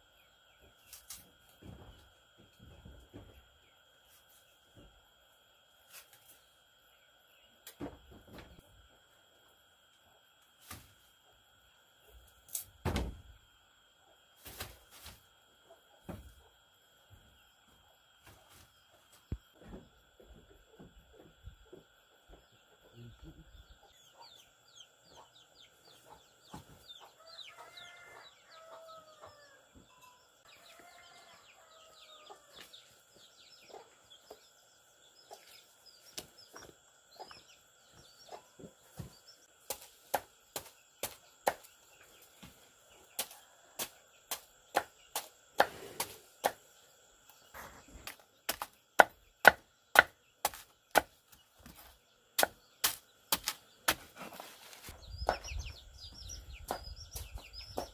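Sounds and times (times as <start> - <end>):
faint chirping: 15.3 - 39.6
sharp chopping strikes: 39.6 - 41.7, 43.2 - 46.6, 48.0 - 51.2, 52.4 - 54.0.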